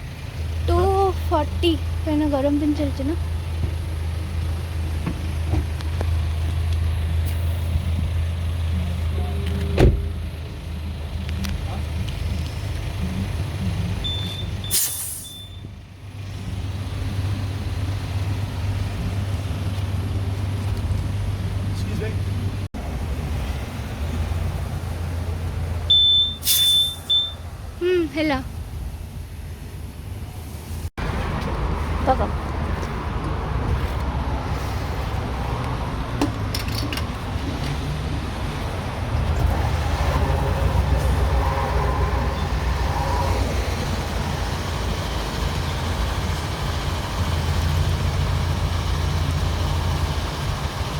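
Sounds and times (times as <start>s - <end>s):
car engine rumbling: 0.0s - 50.9s
short high beeps: 14.0s - 15.7s, 25.9s - 27.4s
air hissing: 14.7s - 15.4s, 26.2s - 27.3s.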